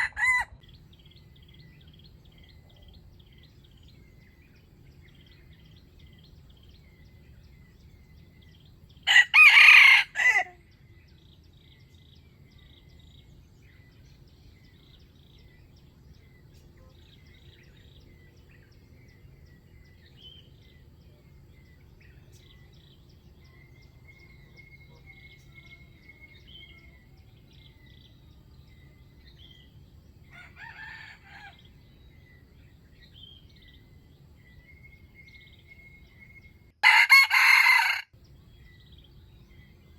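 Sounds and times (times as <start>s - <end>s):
rooster crowing: 0.0s - 0.6s, 9.0s - 10.6s, 30.3s - 31.7s, 36.8s - 38.2s
small birds chirping: 0.0s - 39.9s.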